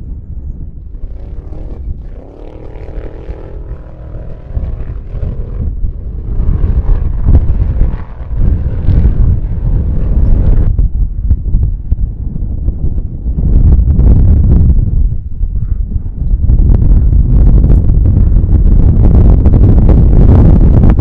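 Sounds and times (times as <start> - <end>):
wind rumble on microphone: 0.0 - 21.0
motor engine rising in pitch: 0.8 - 11.1.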